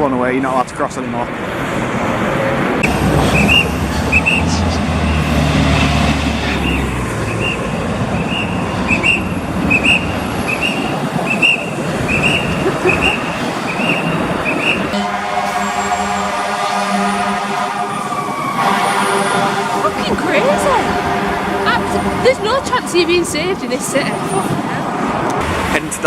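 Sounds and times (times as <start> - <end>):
city street traffic: 0.0 - 26.0
low engine rumble: 2.8 - 18.9
fire truck warning tone: 2.8 - 24.7.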